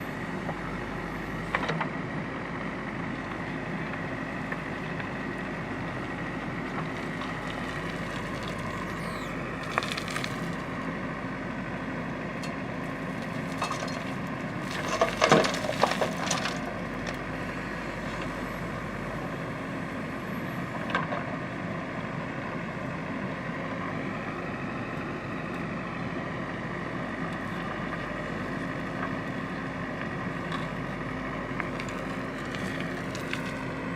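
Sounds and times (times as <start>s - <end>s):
diesel engine running: 0.0s - 33.9s
bucket crunching and clanking: 13.6s - 16.7s.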